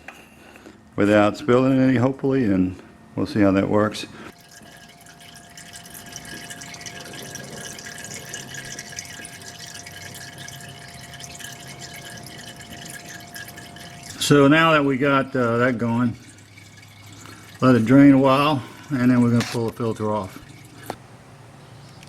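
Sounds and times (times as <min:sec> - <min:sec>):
oil pouring trickle: 0:04.3 - 0:21.5
faint steady high tone: 0:04.4 - 0:21.0.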